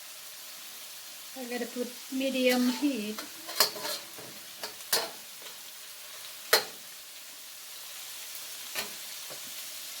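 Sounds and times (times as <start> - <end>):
paste sizzling in oil: 0.0 - 10.0
utensil clacking against pan: 2.6 - 5.6, 6.5 - 6.8.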